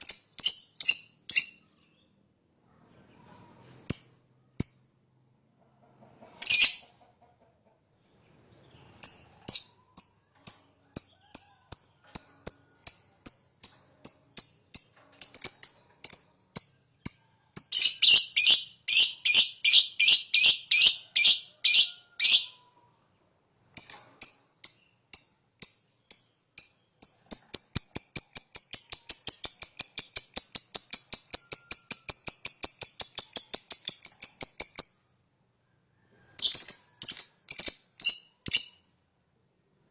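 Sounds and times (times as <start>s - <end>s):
lovebird chirping and trilling: 0.0s - 2.1s, 6.4s - 6.8s, 8.6s - 22.6s, 23.8s - 35.1s, 36.4s - 38.9s.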